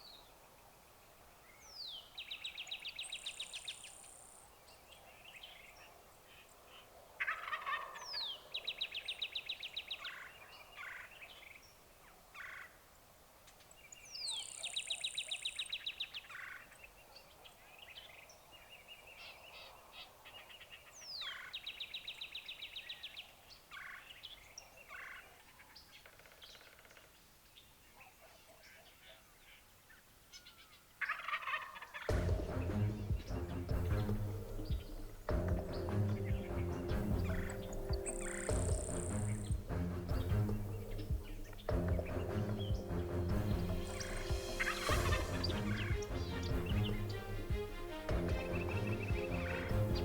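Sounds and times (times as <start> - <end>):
small birds chirping: 0.0 - 12.8, 13.5 - 50.0
wild turkey gobbling: 7.2 - 8.1, 31.0 - 46.2.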